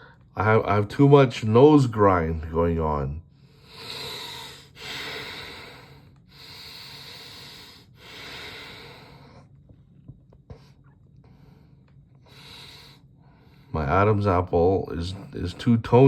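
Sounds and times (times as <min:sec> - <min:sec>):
man breathing hard through nose: 0:03.3 - 0:09.7, 0:10.5 - 0:13.7.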